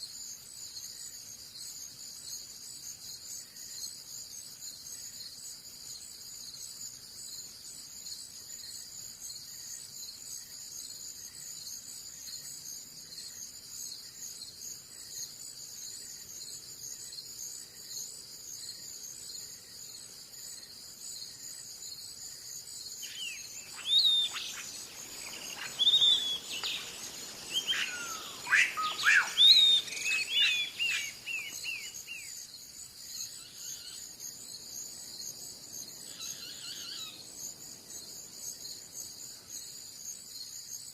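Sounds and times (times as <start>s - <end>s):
crickets chirping: 0.0s - 40.9s
songbird whistling: 23.0s - 32.3s.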